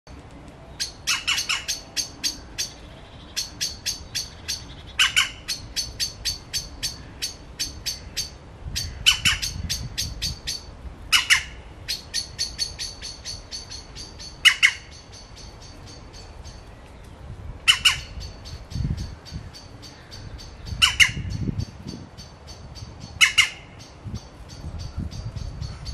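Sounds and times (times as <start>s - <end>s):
bird harsh squawk: 0.8s - 15.6s, 17.7s - 21.4s, 23.2s - 23.8s.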